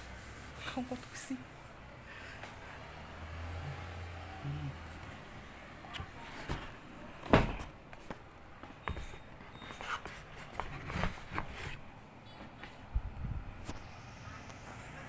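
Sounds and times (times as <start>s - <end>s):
items knocking and rustling: 5.9s - 12.9s.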